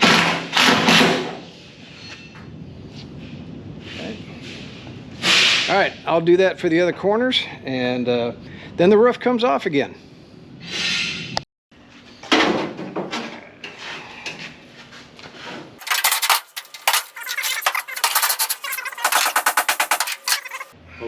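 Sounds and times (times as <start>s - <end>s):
metal clinking and clattering: 15.8s - 20.8s
rapid sharp clicks: 15.8s - 20.8s.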